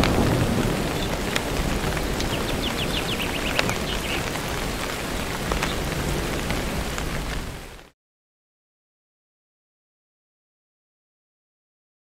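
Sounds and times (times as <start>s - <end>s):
steady rain: 0.0s - 7.9s.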